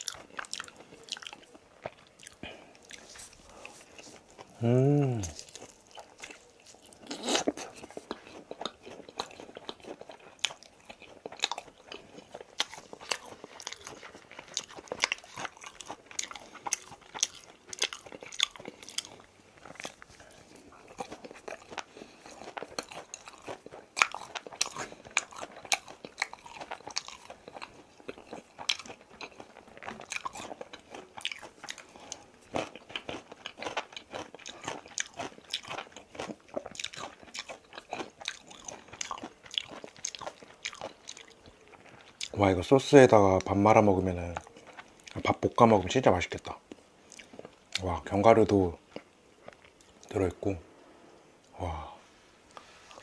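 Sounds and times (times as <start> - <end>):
chewing crispy fried chicken: 0.0 - 50.5.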